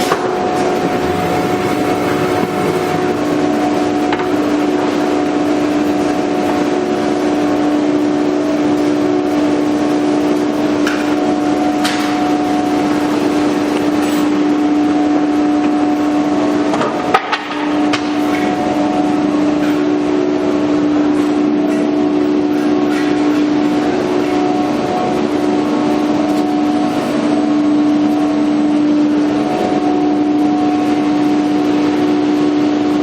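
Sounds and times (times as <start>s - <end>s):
cnc router humming: 0.0s - 17.0s.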